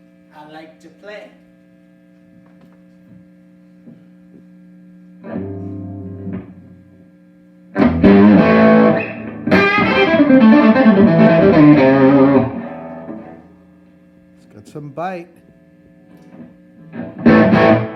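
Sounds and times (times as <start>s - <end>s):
amp hum: 0.0s - 17.9s
distorted electric guitar riffing: 5.2s - 7.0s, 7.8s - 13.5s, 16.3s - 17.9s.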